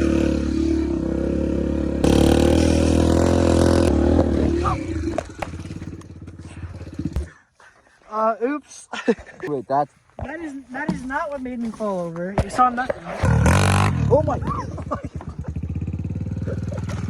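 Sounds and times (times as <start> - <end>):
dirtbike engine running: 0.0 - 7.5, 12.4 - 17.0.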